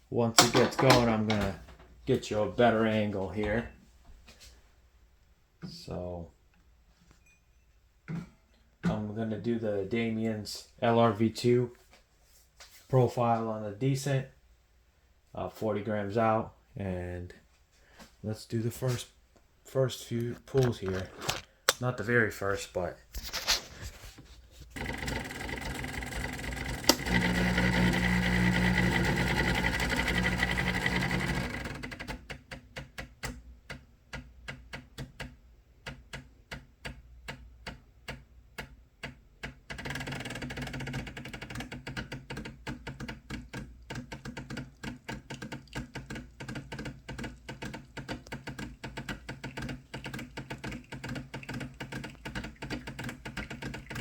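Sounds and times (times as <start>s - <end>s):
espresso machine pump humming: 24.8s - 32.0s.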